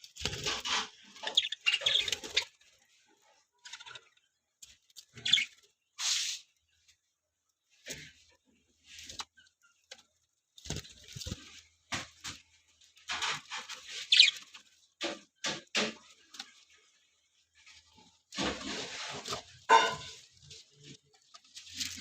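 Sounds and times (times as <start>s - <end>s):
budgerigars chirping and squawking: 0.5s - 2.5s, 5.1s - 6.3s, 13.2s - 14.5s.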